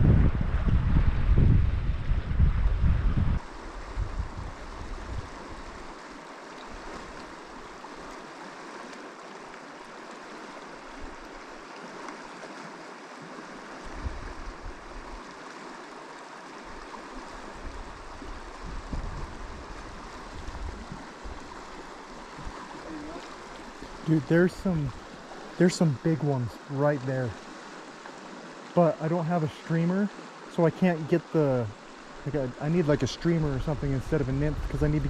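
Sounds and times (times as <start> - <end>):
wind rumble on microphone: 0.0 - 6.0, 13.8 - 15.3, 16.7 - 25.1, 32.2 - 35.0
river water rushing over rocks: 3.4 - 33.7.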